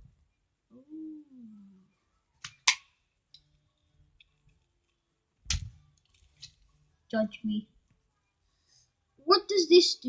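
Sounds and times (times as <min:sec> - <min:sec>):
person humming: 0:00.7 - 0:01.9.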